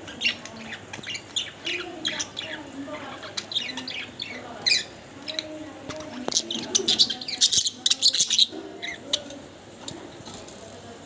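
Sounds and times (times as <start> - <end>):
budgerigars chirping: 0.0 - 5.5, 6.3 - 9.0.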